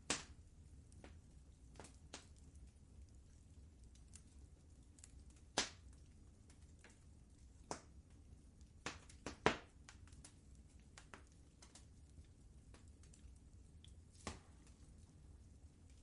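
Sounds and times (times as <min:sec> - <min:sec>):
sharp pops of fire: 0:00.0 - 0:00.4, 0:01.0 - 0:02.3, 0:05.3 - 0:05.9, 0:07.6 - 0:08.0, 0:08.8 - 0:11.8, 0:14.1 - 0:14.7
fire low rumble: 0:00.0 - 0:16.0
wood fire crackling: 0:00.0 - 0:16.0.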